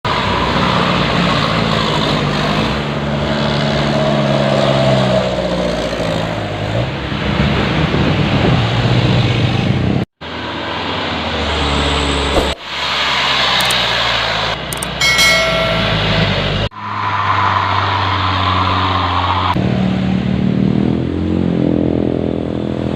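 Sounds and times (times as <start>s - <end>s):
diesel truck engines under load: 0.1s - 17.0s.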